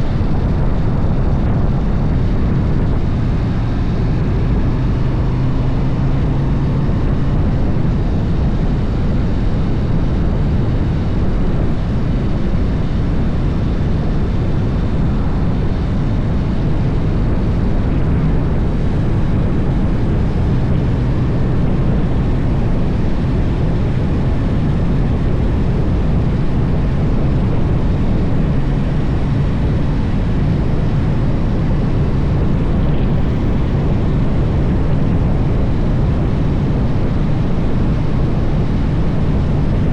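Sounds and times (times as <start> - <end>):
motorcycle engine drone: 0.0 - 39.9
wind rushing on microphone: 0.0 - 39.9.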